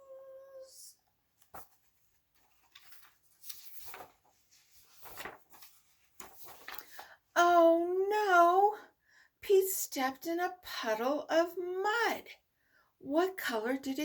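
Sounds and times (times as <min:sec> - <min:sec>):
woman singing: 0:00.0 - 0:00.9
book page rustling: 0:01.4 - 0:07.2
soft clicks of book: 0:01.4 - 0:07.2.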